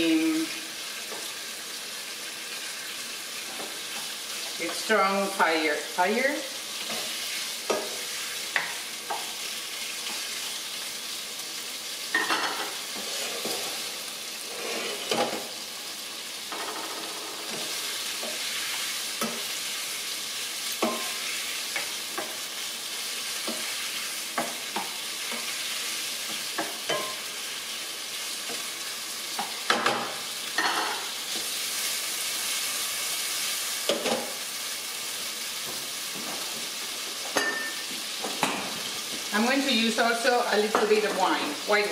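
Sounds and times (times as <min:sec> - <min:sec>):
shrimp sizzling in a frying pan: 0:00.0 - 0:41.9.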